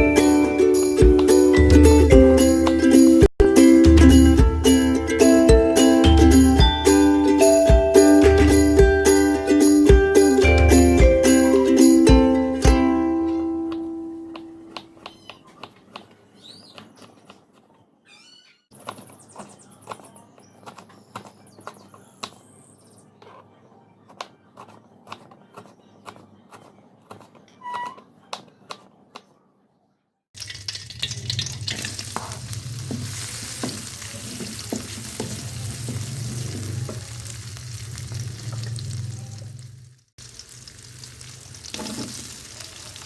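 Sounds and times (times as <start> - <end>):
food sizzling in a pan: 30.4 - 43.0.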